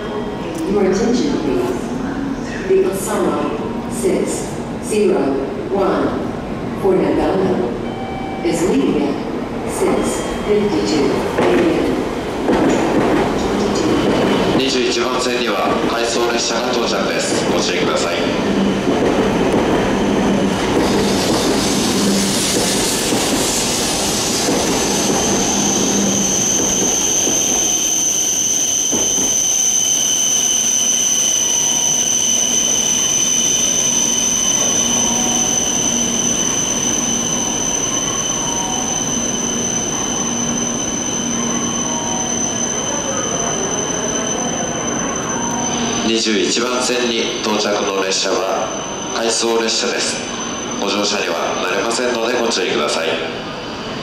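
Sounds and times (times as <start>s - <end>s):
train rolling noise: 8.8s - 54.0s
high-pitched squeal: 16.9s - 52.5s.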